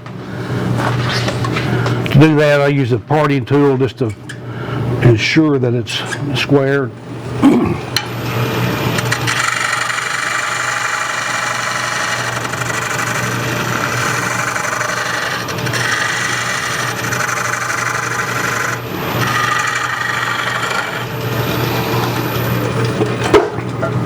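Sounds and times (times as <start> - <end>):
wood lathe humming: 8.6 - 22.9
parting tool cutting wood: 9.0 - 22.4.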